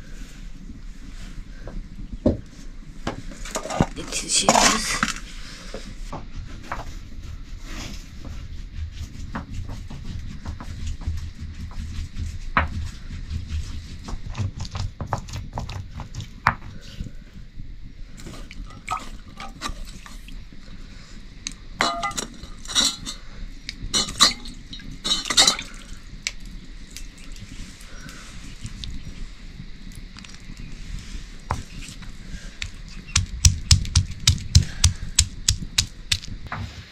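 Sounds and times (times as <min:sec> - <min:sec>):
metal pots and utensils clinking: 0:21.8 - 0:23.2, 0:24.0 - 0:25.8.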